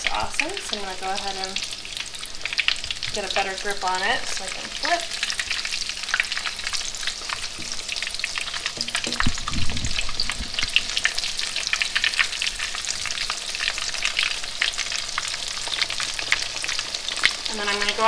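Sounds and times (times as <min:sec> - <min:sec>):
fish frying in hot oil: 0:00.0 - 0:18.0
low thump: 0:08.8 - 0:10.6.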